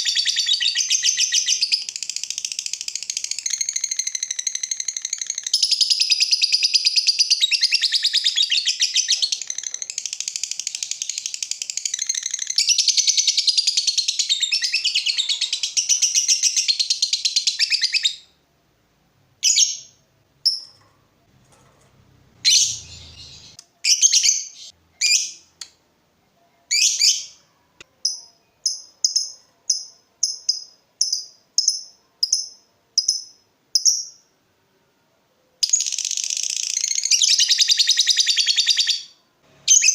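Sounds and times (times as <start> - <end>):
bird chirps: 0.0 - 18.4, 22.3 - 25.6, 26.5 - 34.3, 35.6 - 39.9.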